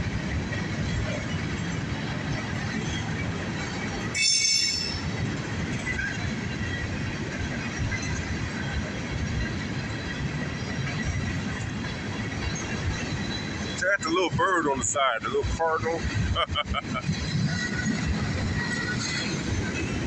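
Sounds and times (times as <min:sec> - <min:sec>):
freight train rumbling: 0:00.0 - 0:20.0
high-pitched wheel squeal: 0:04.1 - 0:05.2.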